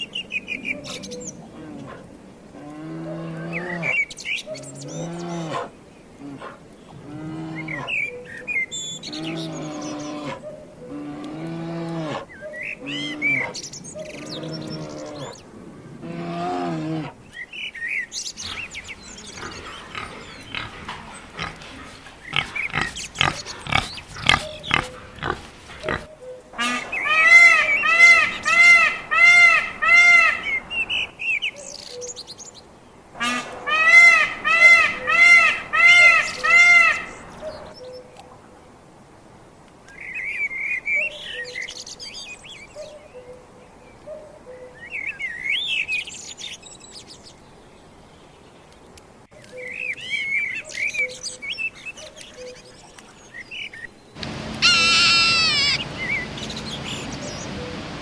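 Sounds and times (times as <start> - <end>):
low animal calls: 0.8 - 8.2, 18.4 - 31.1, 54.2 - 57.1
high-pitched animal calls: 18.4 - 31.1, 54.5 - 56.2.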